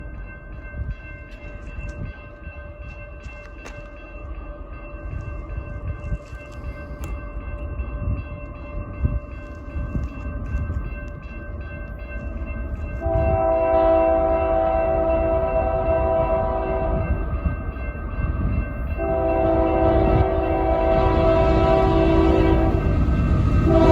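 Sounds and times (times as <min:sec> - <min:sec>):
train rumbling at speed: 0:00.0 - 0:23.9
locomotive air horn chord: 0:13.0 - 0:17.1, 0:19.0 - 0:23.0, 0:23.6 - 0:23.9.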